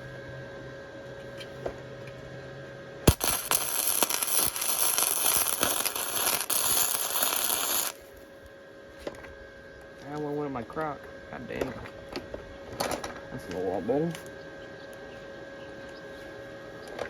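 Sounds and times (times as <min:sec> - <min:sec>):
welder arc striking pop: 0:03.1 - 0:08.0
welder arc crackling: 0:03.1 - 0:08.2.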